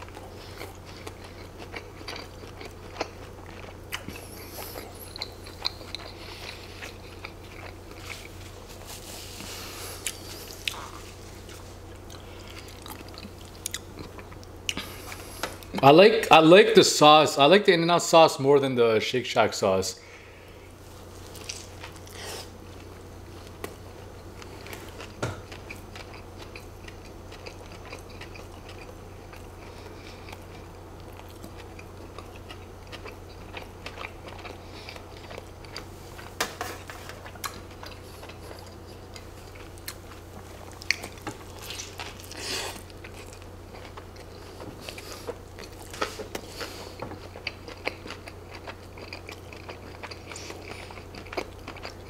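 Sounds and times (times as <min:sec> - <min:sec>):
wet chewing with lip smacks: 0:37.2 - 0:52.0.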